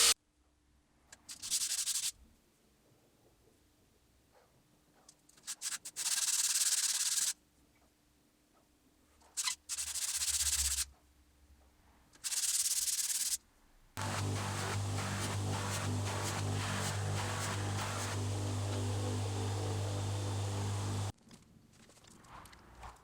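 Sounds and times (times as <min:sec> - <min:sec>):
hiss bursts: 0:14.0 - 0:21.1
steady hum: 0:14.0 - 0:21.1.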